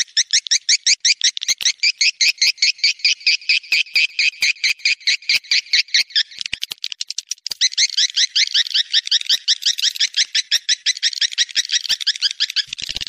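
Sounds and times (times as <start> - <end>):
swiftlet chirping: 3.6 - 6.8.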